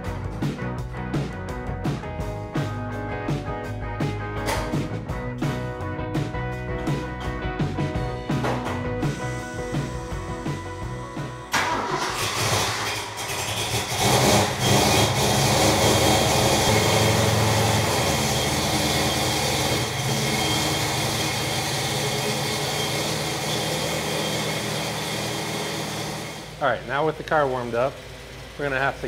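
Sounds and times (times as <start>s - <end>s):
car engine starting and running: 6.9s - 29.0s.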